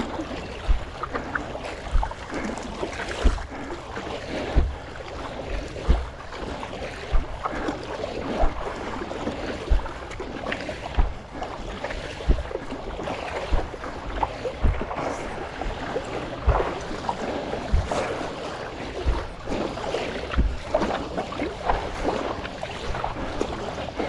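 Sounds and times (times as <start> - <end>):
dull low thumps: 0.0 - 9.0, 9.6 - 23.4
water splashing from paddling: 0.0 - 24.0.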